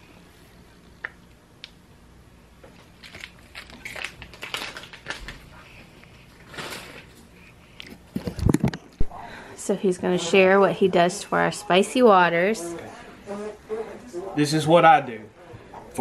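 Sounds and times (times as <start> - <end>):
child chewing food: 2.7 - 9.0.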